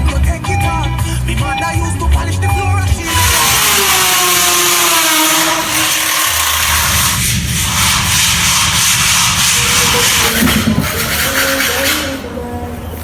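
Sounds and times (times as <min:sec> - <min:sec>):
power tool motor whine: 0:03.0 - 0:11.1.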